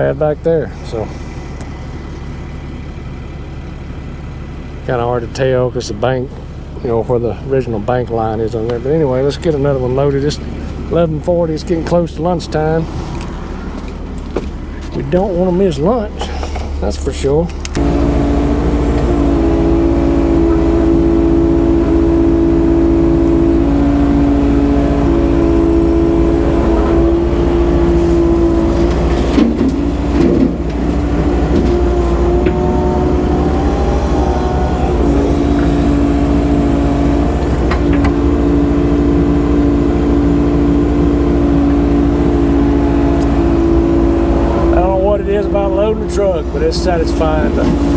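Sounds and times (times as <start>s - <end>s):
excavator diesel engine: 0.0s - 47.9s
machinery clunks: 16.2s - 39.0s, 41.4s - 47.9s.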